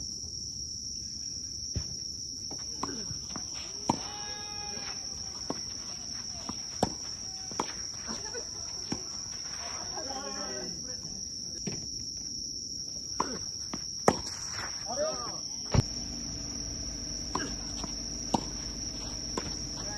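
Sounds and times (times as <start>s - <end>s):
crickets chirping: 0.0s - 19.9s
tennis balls struck by rackets: 2.5s - 9.3s, 13.2s - 14.5s, 15.7s - 19.9s
tennis balls bouncing on court: 2.5s - 9.4s, 13.1s - 14.4s, 15.7s - 19.9s
players calling out: 2.7s - 11.2s, 14.8s - 19.9s.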